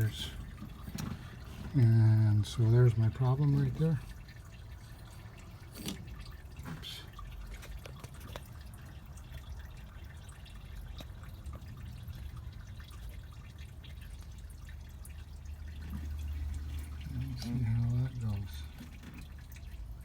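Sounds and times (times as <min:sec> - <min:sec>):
coolant dripping: 0:00.0 - 0:20.0.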